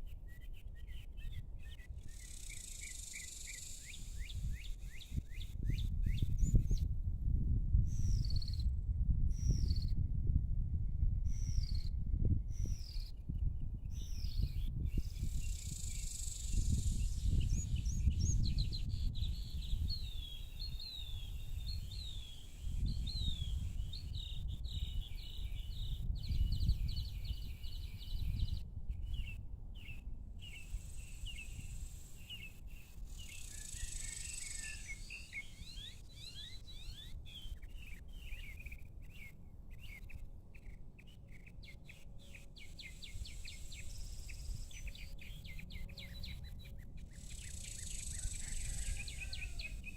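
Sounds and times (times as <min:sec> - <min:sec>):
small birds chirping: 0:13.9 - 0:49.9.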